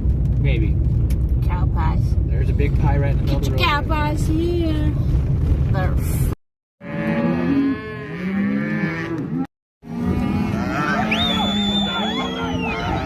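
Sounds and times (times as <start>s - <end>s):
cattle mooing: 6.8s - 13.0s.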